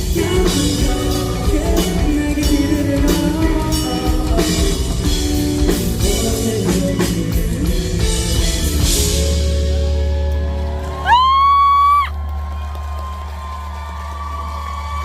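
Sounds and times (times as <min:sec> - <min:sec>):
live rock band playing: 0:00.0 - 0:12.0
fan cheering loudly: 0:09.8 - 0:15.0.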